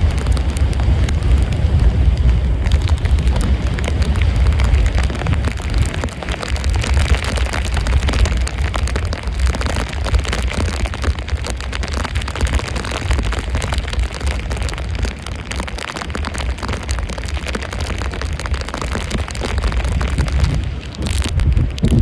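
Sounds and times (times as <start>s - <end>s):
storm wind buffeting microphone: 0.0s - 22.0s.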